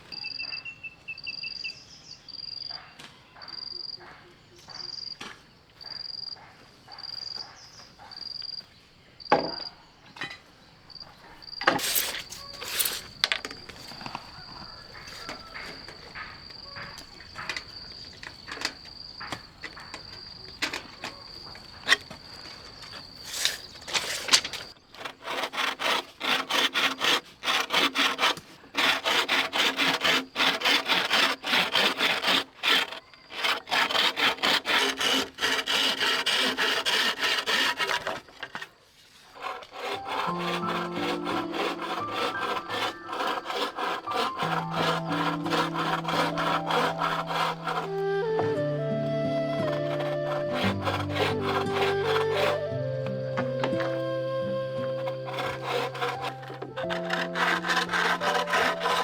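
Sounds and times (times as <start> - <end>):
wood knocking: 9.3 - 10.4, 11.6 - 22.2
hand saw cutting wood: 11.6 - 21.2, 21.8 - 22.1, 23.0 - 59.0.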